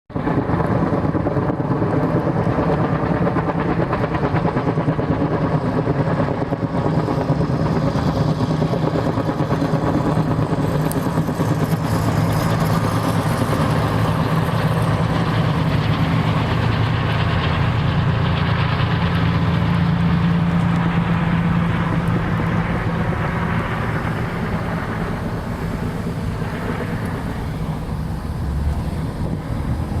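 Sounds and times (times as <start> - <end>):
engine drone: 0.1 - 30.0
rushing noise: 11.2 - 30.0.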